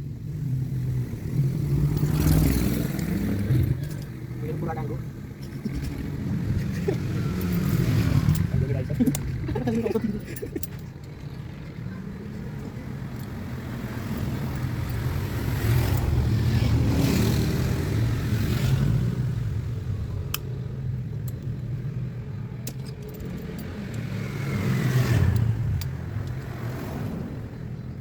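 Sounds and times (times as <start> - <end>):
car engine revving: 0.6 - 10.2
sharp metallic clicks: 7.2 - 11.8, 20.1 - 26.8.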